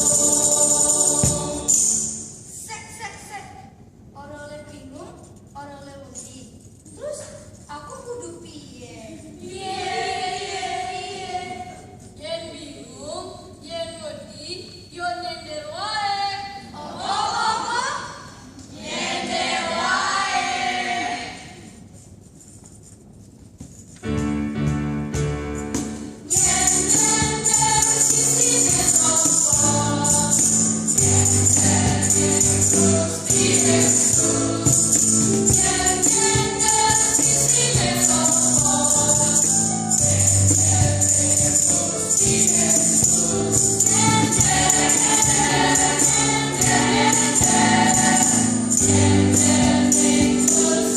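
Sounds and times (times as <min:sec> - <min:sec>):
choir singing: 0:00.0 - 0:02.4, 0:09.4 - 0:11.9, 0:16.8 - 0:17.8, 0:18.7 - 0:21.7, 0:26.3 - 0:50.9
instrumental accompaniment: 0:00.0 - 0:02.5, 0:23.8 - 0:50.9
tambourine jingling: 0:00.0 - 0:02.5, 0:24.2 - 0:50.9.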